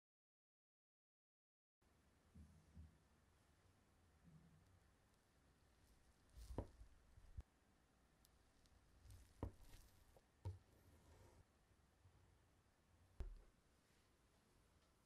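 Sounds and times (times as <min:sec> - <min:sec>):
knife squishing through cake: 0:09.0 - 0:10.2.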